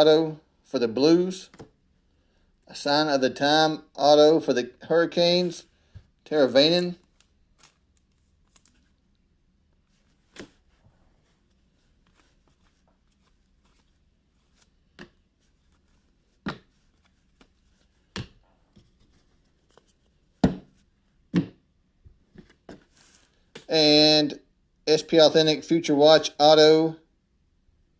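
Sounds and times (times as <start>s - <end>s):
trading cards flicked by hand: 16.4s - 18.4s.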